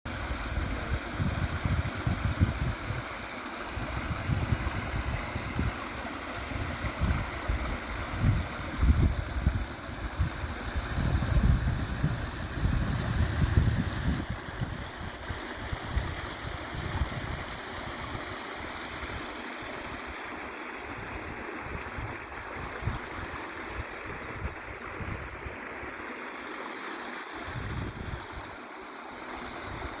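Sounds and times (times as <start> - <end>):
wind buffeting microphone: 0.1 - 18.2, 27.4 - 28.5
stream water running over rocks: 0.1 - 30.0.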